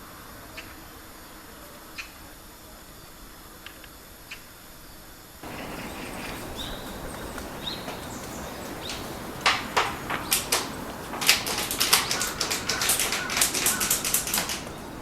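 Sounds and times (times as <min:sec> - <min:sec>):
faint high bird notes: 0:05.4 - 0:15.0
woodpecker tapping on wood: 0:05.4 - 0:15.0.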